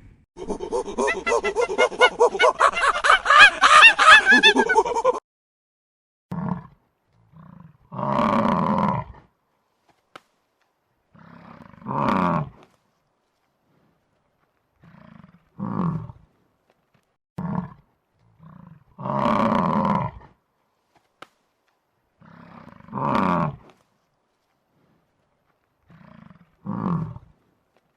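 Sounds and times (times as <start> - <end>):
big cat roaring: 6.3 - 9.3, 11.1 - 12.6, 14.8 - 16.2, 17.4 - 20.4, 22.2 - 23.6, 25.9 - 27.4.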